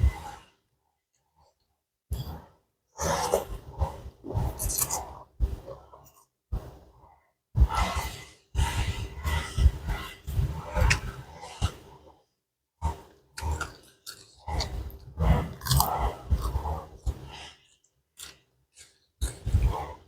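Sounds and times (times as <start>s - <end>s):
person chewing: 4.6s - 5.0s, 13.4s - 16.7s, 17.7s - 19.4s.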